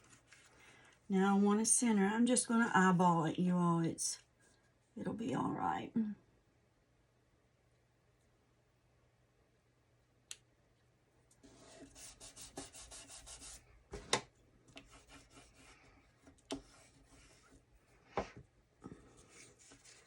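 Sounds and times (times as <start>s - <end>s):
card rubbing by hand: 11.4s - 14.2s, 14.8s - 17.6s, 19.0s - 20.0s.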